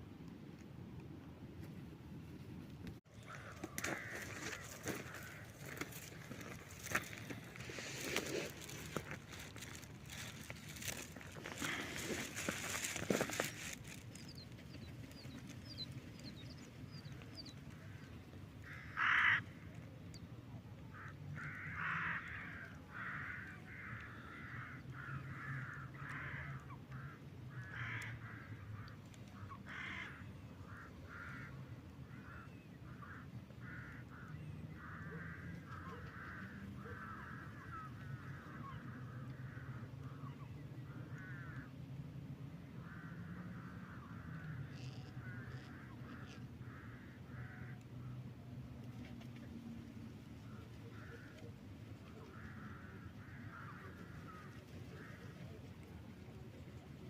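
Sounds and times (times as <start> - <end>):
crows cawing: 3.1 - 14.4, 17.4 - 19.8, 20.9 - 40.2, 40.9 - 41.7, 42.8 - 47.8, 50.4 - 55.8.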